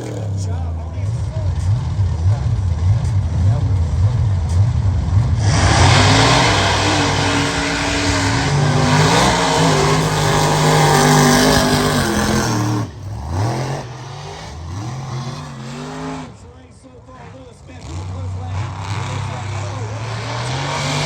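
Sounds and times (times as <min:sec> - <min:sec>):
truck engine revving: 0:00.0 - 0:21.0
loud rushing noise: 0:04.8 - 0:13.0.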